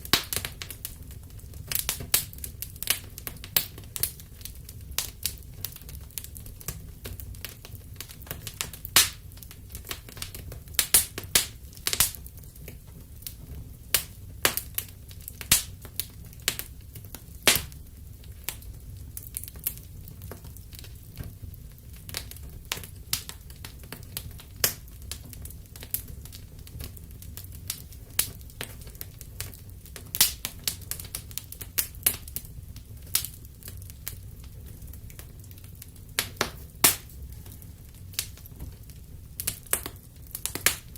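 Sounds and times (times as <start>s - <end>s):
low rumble of flames: 0.0s - 40.9s
wood fire crackling: 0.0s - 40.9s
sharp pops and snaps: 8.4s - 9.2s, 9.9s - 12.2s, 13.9s - 16.7s, 17.4s - 17.8s, 24.6s - 24.8s, 36.2s - 37.2s, 39.4s - 40.9s.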